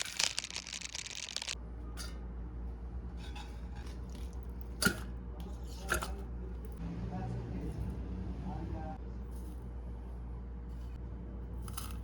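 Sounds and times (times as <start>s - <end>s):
crinkling rustle: 0.0s - 1.6s.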